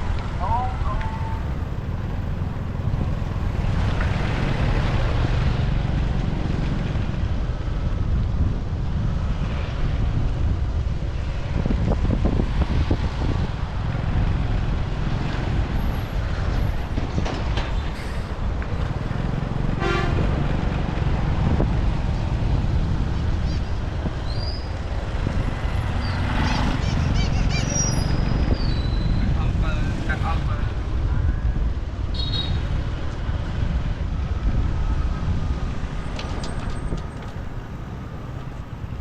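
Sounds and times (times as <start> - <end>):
vehicle horn toot: 19.8 - 20.3, 32.1 - 32.6.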